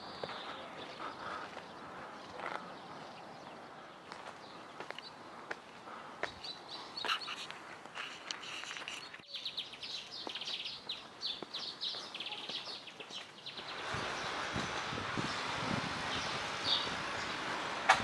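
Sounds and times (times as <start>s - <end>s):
small birds chirping: 0.0s - 18.0s
steady rushing noise: 13.6s - 18.0s.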